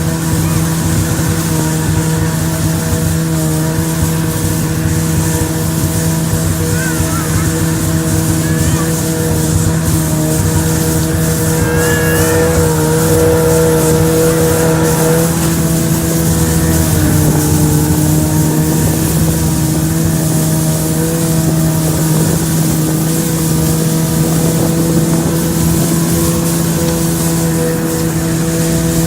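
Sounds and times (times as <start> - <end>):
rushing over snow: 0.0 - 29.0
snowmobile engine running: 0.0 - 29.0.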